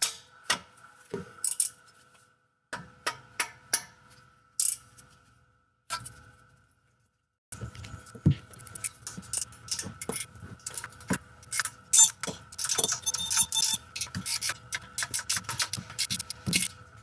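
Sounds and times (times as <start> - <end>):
hand tools clicking on metal: 8.7 - 16.7.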